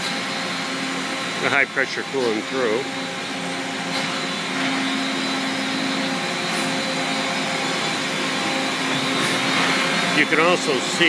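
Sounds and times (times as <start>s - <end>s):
machine humming: 0.0s - 11.0s
coolant hissing: 5.0s - 11.0s.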